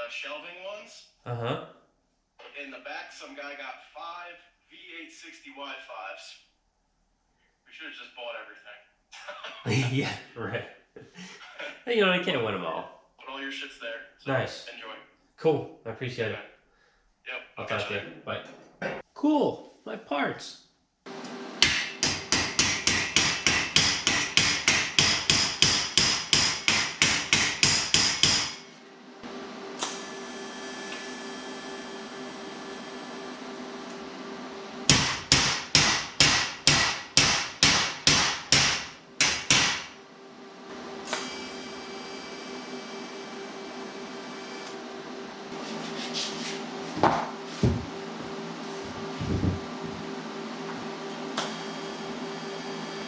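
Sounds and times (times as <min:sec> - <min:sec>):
steady hum: 0:21.1 - 0:53.0
hammer blows on sheet steel: 0:21.6 - 0:28.7, 0:34.9 - 0:40.0.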